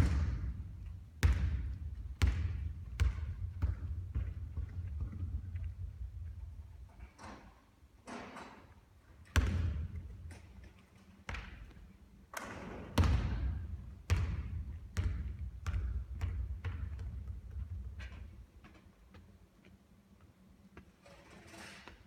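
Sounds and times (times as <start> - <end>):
basketball bouncing on hard court: 0.0 - 6.6, 9.3 - 10.5, 11.3 - 19.2.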